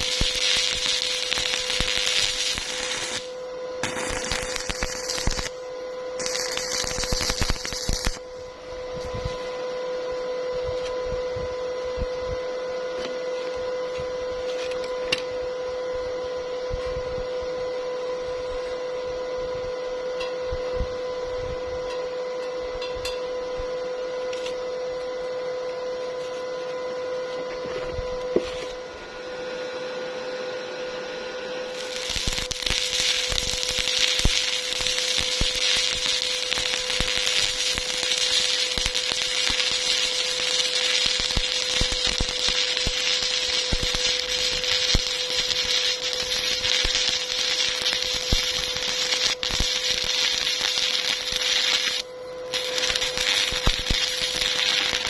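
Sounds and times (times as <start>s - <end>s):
welding arc crackling: 0.0s - 5.6s, 6.2s - 8.4s, 31.7s - 55.0s
electrical hum with whine: 0.0s - 55.0s.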